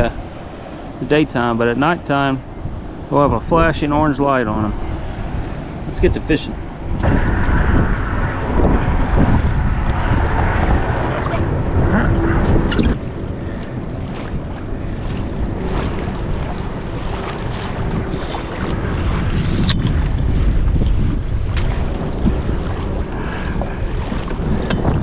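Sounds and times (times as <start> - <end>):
wind buffeting microphone: 0.0 - 25.0
water washing against kayak hull: 6.5 - 25.0.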